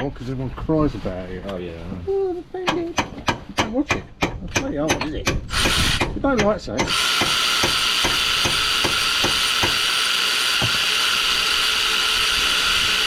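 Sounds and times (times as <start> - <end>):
power tool motor whine: 5.5 - 6.0, 6.9 - 13.0.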